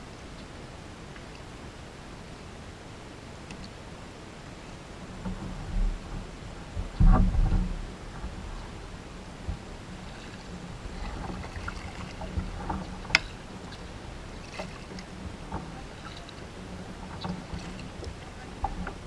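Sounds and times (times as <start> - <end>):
wind rumble on microphone: 0.0 - 19.0
paddle water splashes and drips: 5.1 - 19.0.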